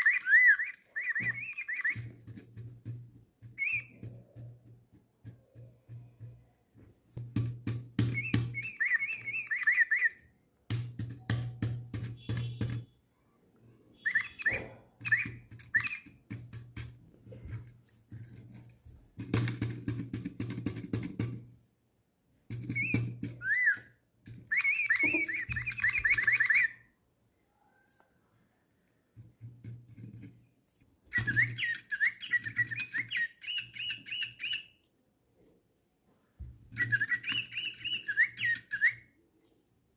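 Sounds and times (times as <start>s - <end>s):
electronic bird tweets: 0.0s - 2.1s, 3.6s - 4.3s, 8.1s - 10.3s, 13.9s - 16.1s, 22.7s - 23.9s, 24.5s - 26.8s, 31.1s - 34.8s, 36.8s - 39.1s.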